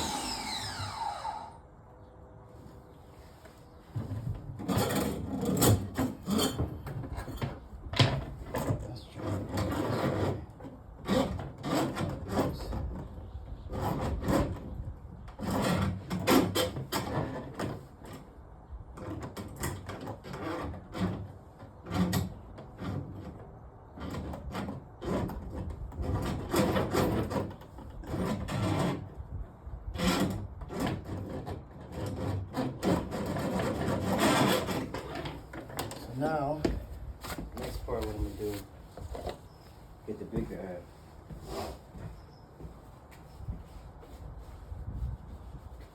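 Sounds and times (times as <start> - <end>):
scraping and rubbing on pipes: 3.2 - 18.4, 30.0 - 36.5, 37.2 - 42.1.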